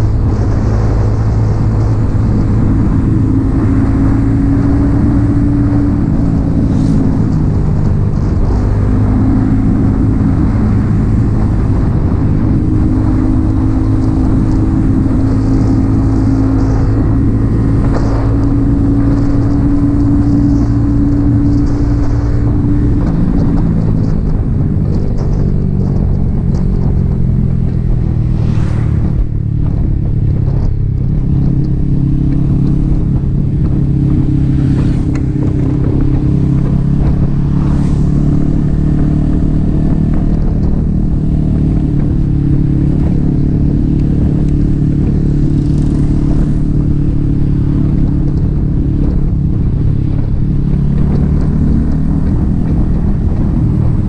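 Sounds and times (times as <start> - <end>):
passing air whooshes: 0.0 - 42.3
motorcycle engine running: 0.0 - 54.0.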